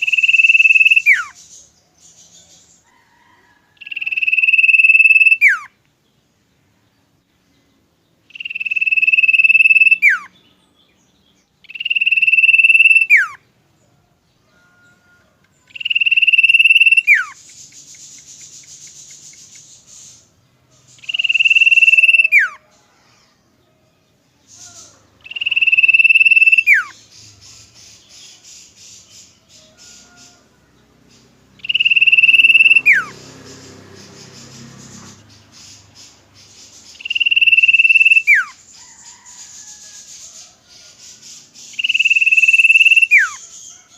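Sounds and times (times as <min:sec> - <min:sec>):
bird whistling song: 0:00.0 - 0:02.8, 0:03.8 - 0:05.7, 0:08.3 - 0:10.7, 0:11.6 - 0:13.4, 0:15.7 - 0:22.7, 0:24.5 - 0:30.4, 0:31.1 - 0:43.8
buzzy rattling bird chatter: 0:17.2 - 0:21.8, 0:31.1 - 0:42.3.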